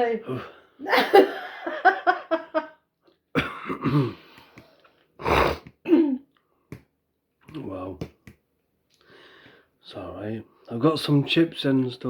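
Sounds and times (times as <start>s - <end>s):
person coughing: 3.4s - 4.3s, 5.2s - 6.3s.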